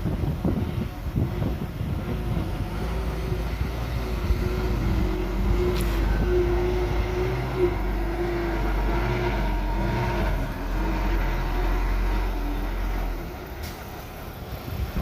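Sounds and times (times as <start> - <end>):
diesel machinery engine rumble: 0.0 - 15.0
wavering whine: 1.6 - 13.4.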